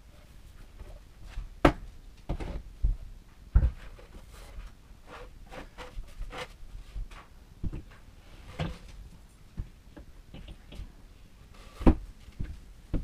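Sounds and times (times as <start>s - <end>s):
scraping and handling noises: 3.6s - 9.7s.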